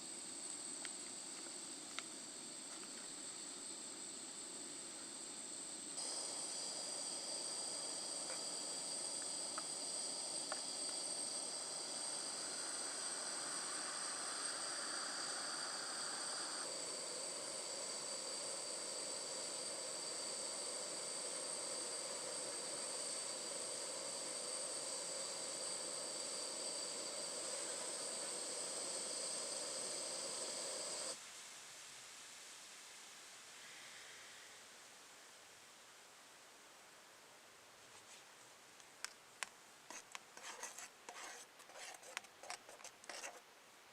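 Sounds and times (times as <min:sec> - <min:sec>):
insects chirring: 0:00.0 - 0:31.2
soft hiss: 0:00.0 - 0:43.9.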